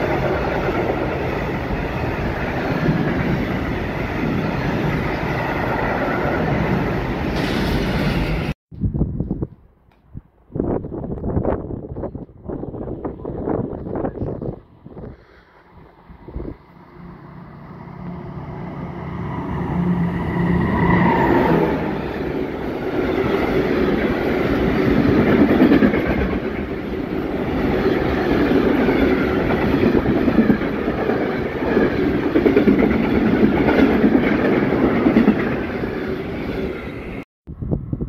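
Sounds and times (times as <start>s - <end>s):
diesel locomotive engine hum: 12.2s - 38.0s.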